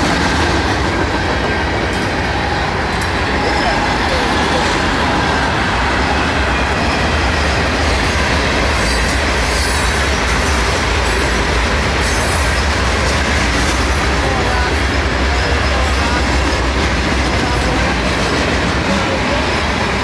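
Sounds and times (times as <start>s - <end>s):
freight train wheels rumbling on rail: 0.0s - 20.0s.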